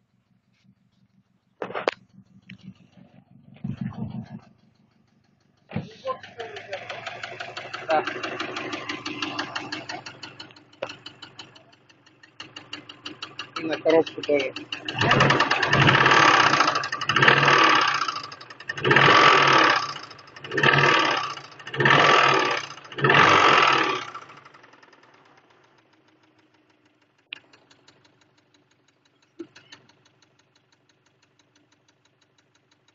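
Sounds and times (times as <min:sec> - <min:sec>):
car engine revving with knock: 0:00.6 - 0:26.6.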